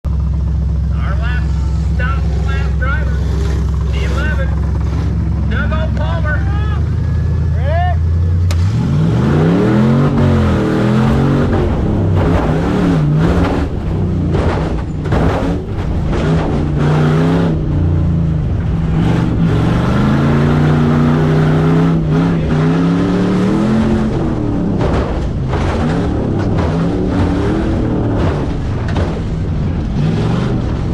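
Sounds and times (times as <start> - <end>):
truck engine revving hard: 0.2 - 30.9
knocks and rattles: 10.1 - 22.6, 23.2 - 30.9.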